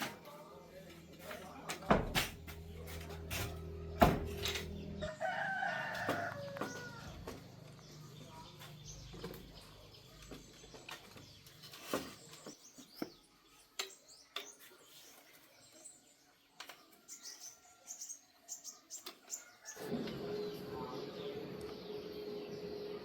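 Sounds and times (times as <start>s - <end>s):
low hum: 2.1s - 5.2s
small birds chirping: 4.4s - 23.0s.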